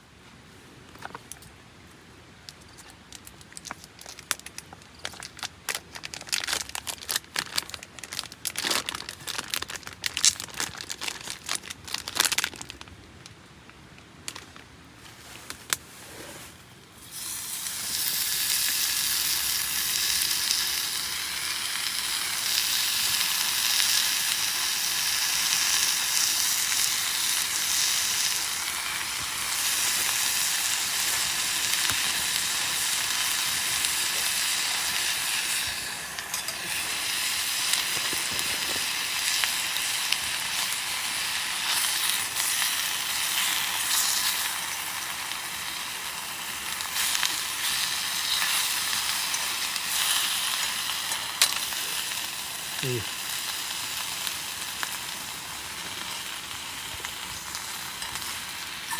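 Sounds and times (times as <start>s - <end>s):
food sizzling in a hot pan: 17.0s - 58.9s.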